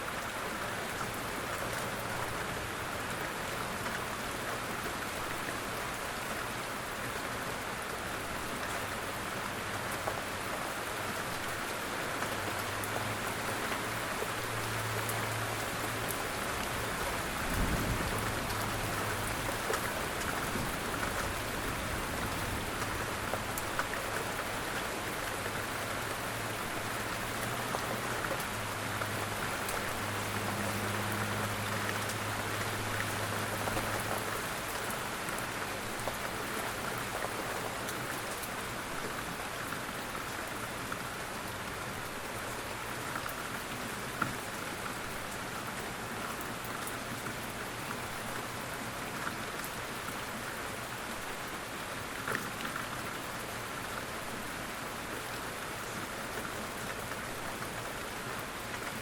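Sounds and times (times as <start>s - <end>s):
quiet rain falling: 0.0s - 59.0s
raindrop ticks: 27.0s - 39.3s.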